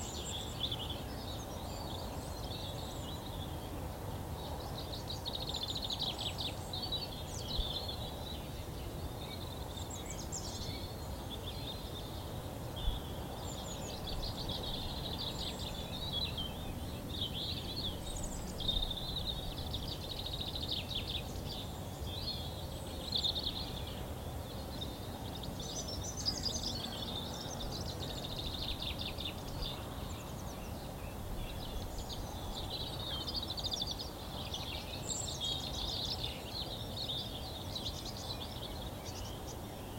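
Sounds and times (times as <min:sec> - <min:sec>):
birds chirping and trilling: 0:12.8 - 0:39.9.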